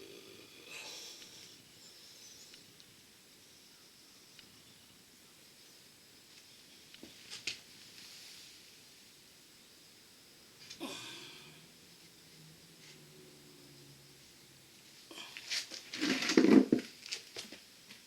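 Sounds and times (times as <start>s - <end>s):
soft rustle: 6.3s - 9.2s.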